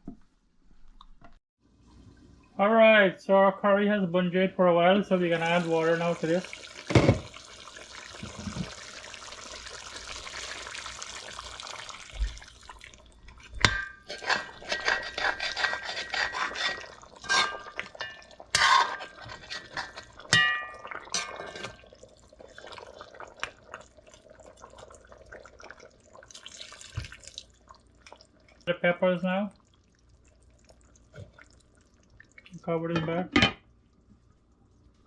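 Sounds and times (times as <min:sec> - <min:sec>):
water pouring into pot: 0:05.1 - 0:28.7, 0:29.5 - 0:32.6
metal utensil clinking on pot: 0:13.6 - 0:21.8.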